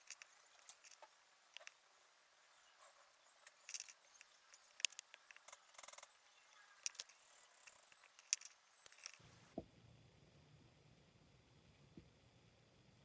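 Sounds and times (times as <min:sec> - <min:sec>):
plastic parts clicking: 0:03.5 - 0:05.5, 0:06.8 - 0:09.3.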